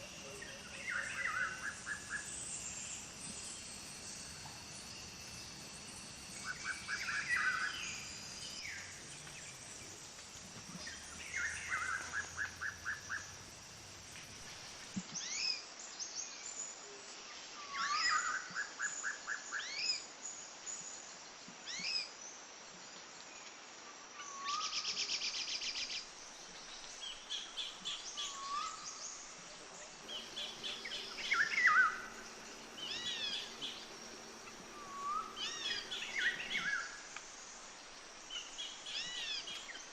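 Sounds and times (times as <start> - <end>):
birds calling and singing: 0.0 - 14.2, 29.8 - 39.9
faint steady hiss: 0.0 - 39.9.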